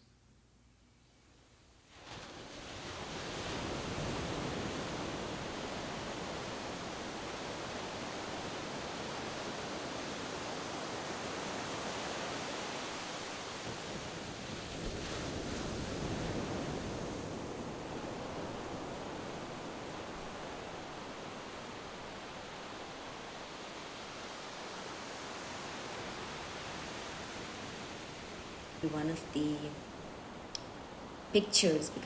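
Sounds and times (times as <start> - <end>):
ocean surf washing on shore: 1.9 - 31.3.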